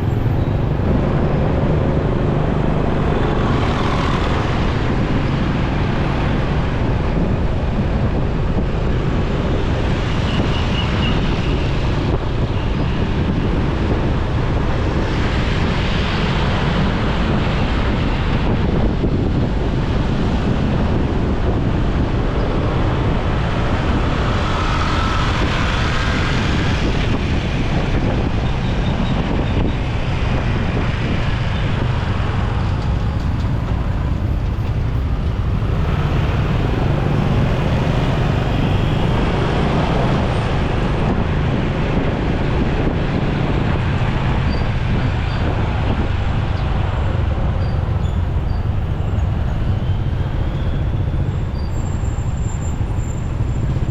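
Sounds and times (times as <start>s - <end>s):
traffic rumble: 0.0s - 53.9s.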